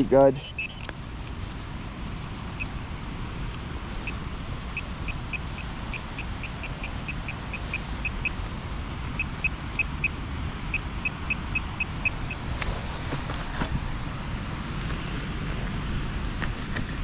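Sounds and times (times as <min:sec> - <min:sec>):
metal detector beeping: 0:00.4 - 0:00.9, 0:04.0 - 0:08.4, 0:09.1 - 0:12.4.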